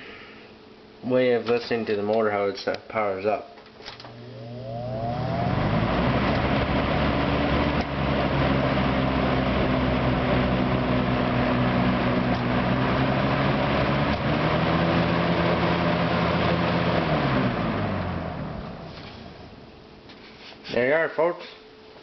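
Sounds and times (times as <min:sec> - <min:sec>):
box fan humming with air rush: 0:04.0 - 0:21.0.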